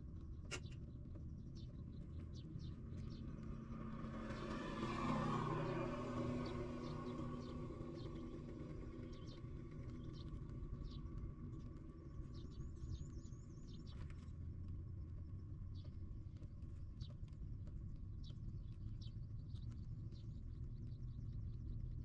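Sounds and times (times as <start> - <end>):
steady low rumble: 6.3 - 22.0.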